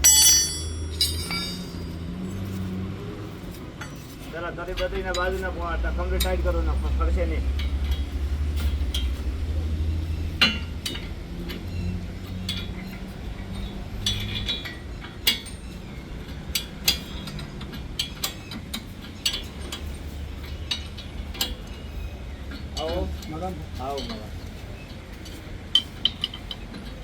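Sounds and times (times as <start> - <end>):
low steady hum: 0.0 - 2.1
hand tools clinking on bolts: 0.0 - 2.8, 10.3 - 27.0.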